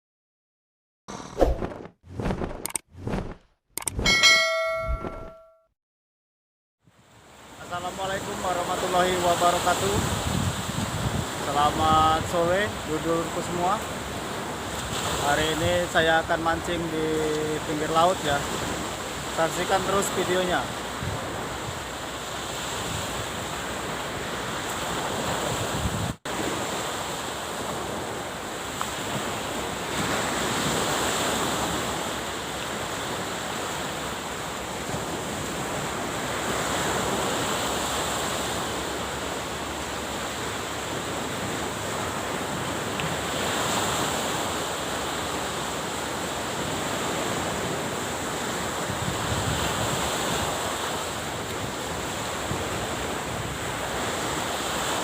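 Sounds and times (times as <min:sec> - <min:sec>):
sea waves washing on shore: 0:07.1 - 0:55.0
wind buffeting microphone: 0:09.9 - 0:11.4, 0:24.9 - 0:26.2, 0:48.8 - 0:50.6.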